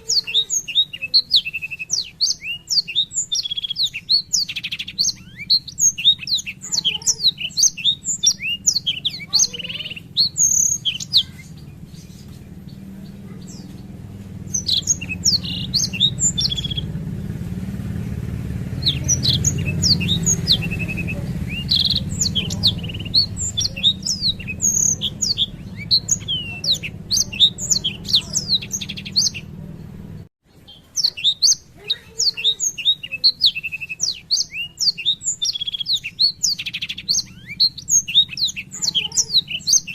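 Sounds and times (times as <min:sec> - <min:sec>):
canary singing: 0:00.0 - 0:39.9
steady low hum: 0:00.5 - 0:30.3.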